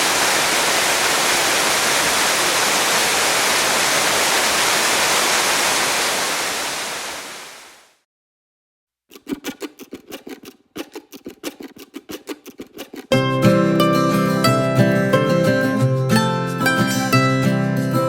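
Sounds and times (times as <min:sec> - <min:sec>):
waterfall rushing: 0:00.0 - 0:08.0
plucked string music: 0:09.1 - 0:18.0.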